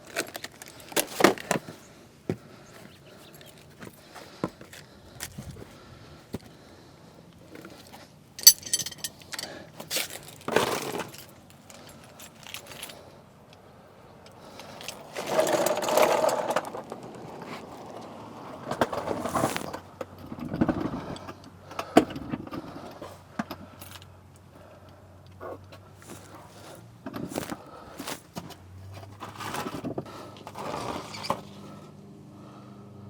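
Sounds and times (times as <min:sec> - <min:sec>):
rummaging and scraping: 0:00.0 - 0:06.6, 0:07.4 - 0:13.1, 0:14.5 - 0:17.9, 0:18.7 - 0:19.8, 0:25.4 - 0:31.8
metal tools clinking and rattling: 0:08.4 - 0:13.0.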